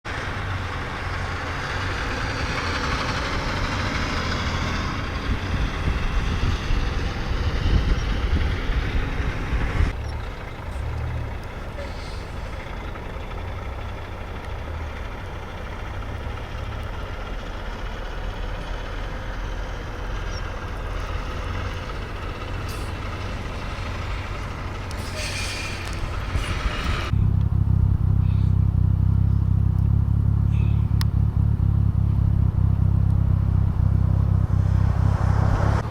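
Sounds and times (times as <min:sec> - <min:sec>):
deeper engine rumble: 0:00.0 - 0:35.9
heavy truck engine rumble: 0:00.1 - 0:35.9.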